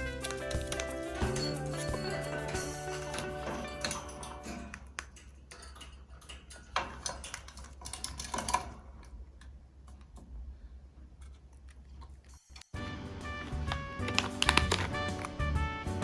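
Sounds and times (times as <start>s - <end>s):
bird beak pecking and crunching: 13.4s - 15.4s.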